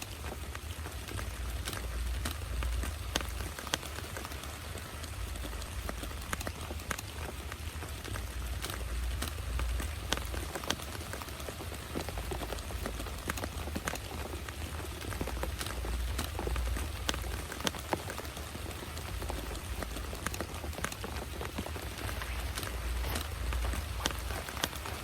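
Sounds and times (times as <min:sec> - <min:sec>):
heavy rain: 0:00.0 - 0:25.0
sharp raindrop impacts: 0:00.0 - 0:25.0.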